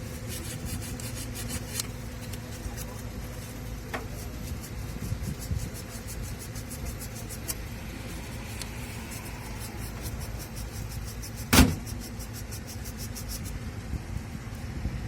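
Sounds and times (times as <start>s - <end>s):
vehicle engine running: 1.7s - 15.0s
loud sharp knock: 11.5s - 11.9s.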